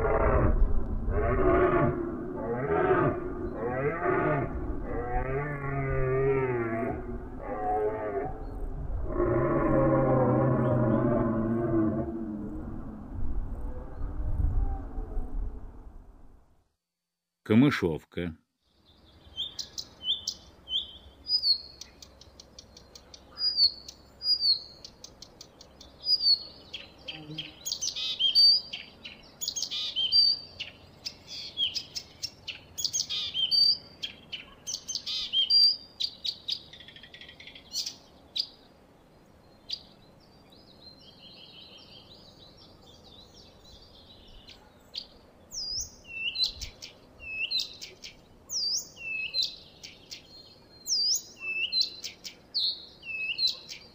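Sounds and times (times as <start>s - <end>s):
reed warbler singing: 18.7s - 53.9s.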